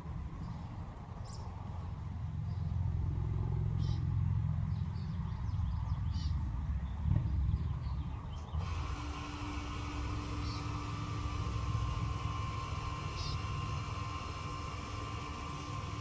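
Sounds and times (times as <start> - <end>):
vehicle passing rumble: 0.0 - 9.0
bird chirps: 13.0 - 13.5.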